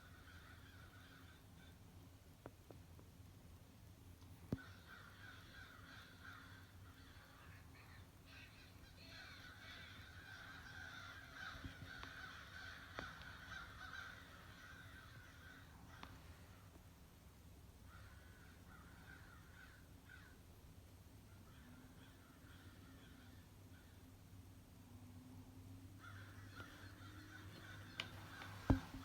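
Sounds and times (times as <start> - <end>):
crows cawing: 0.0 - 1.8, 4.5 - 7.6, 8.4 - 16.8, 17.8 - 20.5, 21.3 - 24.2, 26.0 - 29.0.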